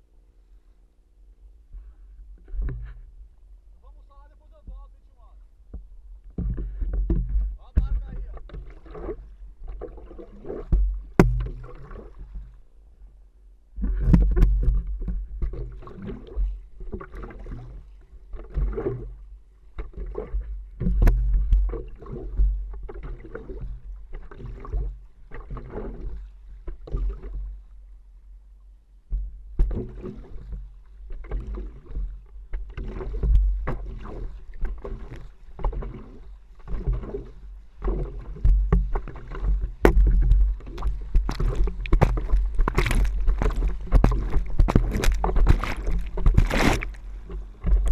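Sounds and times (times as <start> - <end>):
paddle strokes splashing: 1.8 - 12.8, 13.8 - 28.3, 29.1 - 47.9
wind rumbling on microphone: 38.2 - 47.9.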